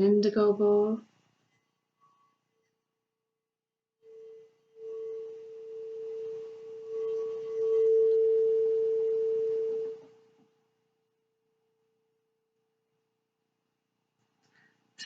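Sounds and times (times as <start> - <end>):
singing bowl ringing: 4.1 - 10.4
faint rasping hiss: 4.1 - 10.5.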